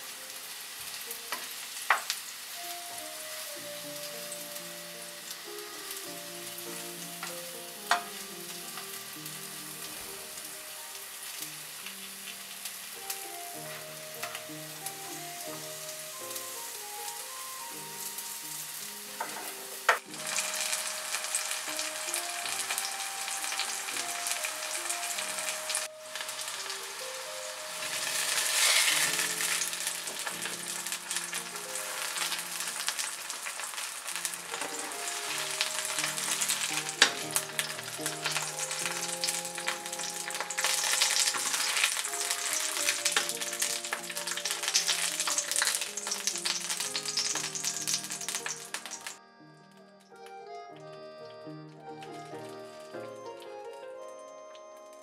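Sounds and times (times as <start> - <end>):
mushrooms sizzling in a frying pan: 0.0 - 49.2
simple background melody: 0.0 - 55.0
spatula stirring in a pan: 27.7 - 48.9.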